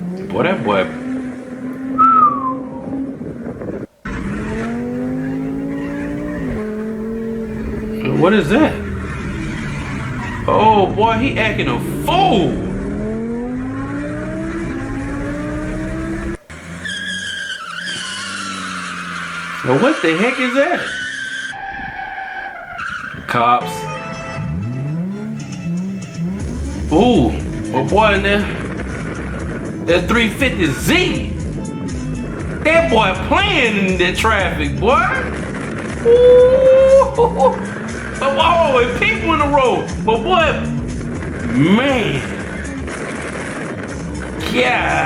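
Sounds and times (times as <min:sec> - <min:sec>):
car engine revving: 0:00.0 - 0:45.0
tires squealing: 0:00.0 - 0:45.0
car horn long note: 0:23.6 - 0:26.4.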